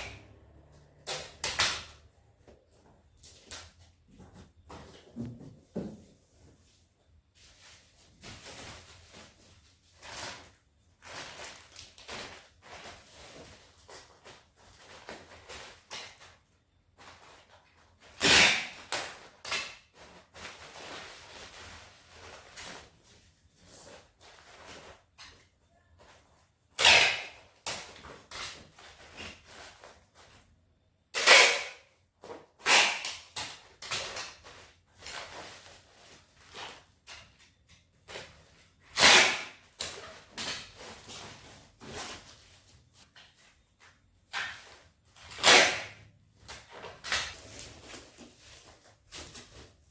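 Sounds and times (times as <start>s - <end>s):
rustles scrapes and knocks: 2.0s - 18.2s, 33.5s - 49.9s.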